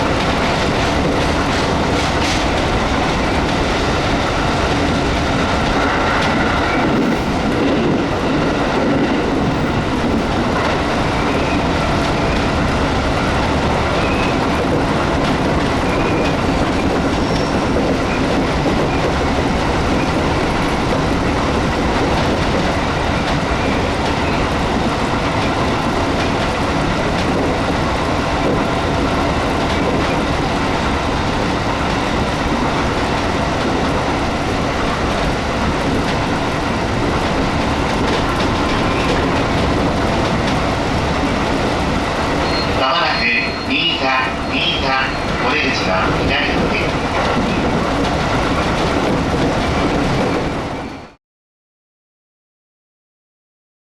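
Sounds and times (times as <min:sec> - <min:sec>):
train rumbling along track: 0:00.0 - 0:51.2.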